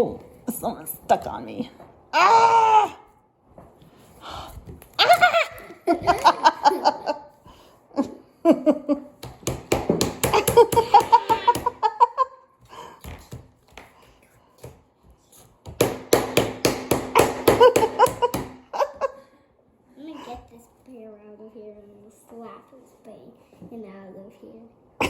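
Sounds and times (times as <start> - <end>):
child laughing: 5.0 - 7.4, 10.3 - 12.4.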